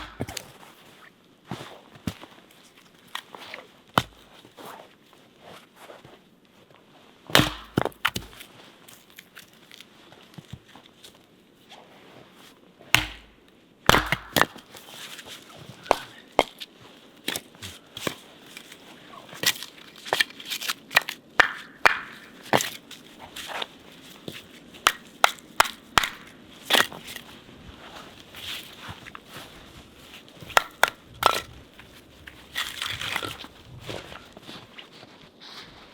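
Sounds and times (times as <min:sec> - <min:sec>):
sharp knocks and crunches: 0:00.0 - 0:00.7, 0:01.6 - 0:04.7, 0:07.3 - 0:09.8, 0:13.0 - 0:18.8, 0:19.4 - 0:34.7.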